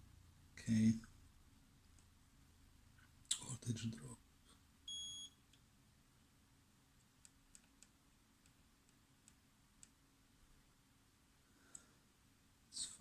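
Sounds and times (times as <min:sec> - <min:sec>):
multimeter high beep: 0:04.9 - 0:05.4.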